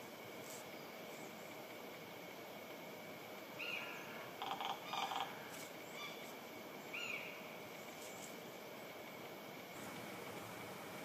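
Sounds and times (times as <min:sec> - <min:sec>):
steady outdoor hiss: 0:00.0 - 0:11.0
bird calls: 0:03.6 - 0:08.2
rattly bird calls: 0:03.6 - 0:08.3.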